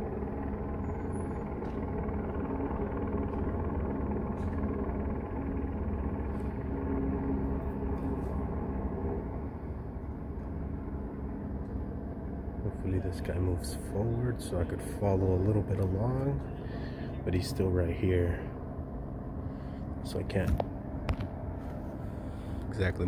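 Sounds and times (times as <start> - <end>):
car engine idling: 0.0 - 18.4.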